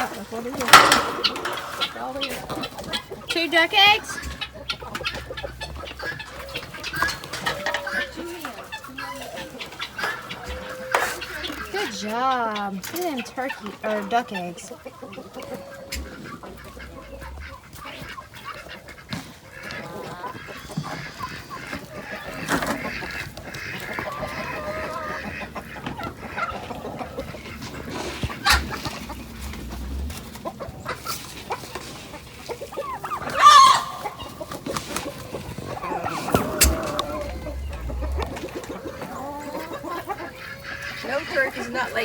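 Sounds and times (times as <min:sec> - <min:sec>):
chickens clucking: 0:00.0 - 0:42.0
chicken loud call: 0:32.9 - 0:41.0.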